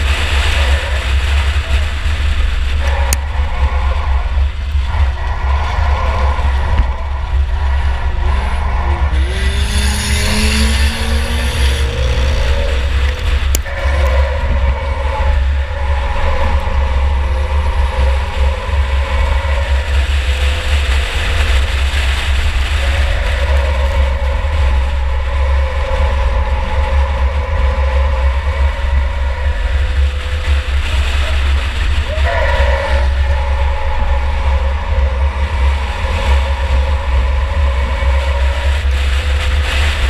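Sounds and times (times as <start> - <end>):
race car engine rumbling: 0.0 - 40.0
road and chassis noise: 0.0 - 40.0.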